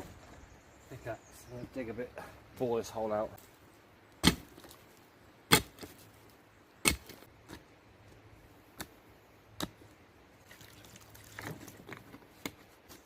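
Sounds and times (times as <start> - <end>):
pickaxe striking ground: 4.2 - 4.8, 5.5 - 6.0, 6.8 - 7.6.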